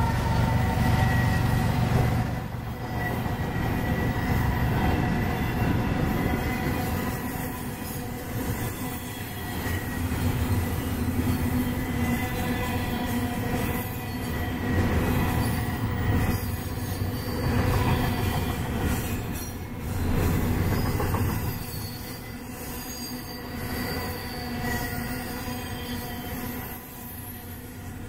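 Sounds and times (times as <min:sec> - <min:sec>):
thin whining tone: 0:00.1 - 0:28.0.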